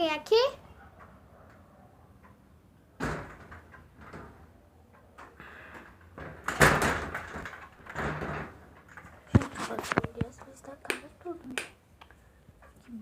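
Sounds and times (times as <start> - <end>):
door banging: 2.3 - 9.5.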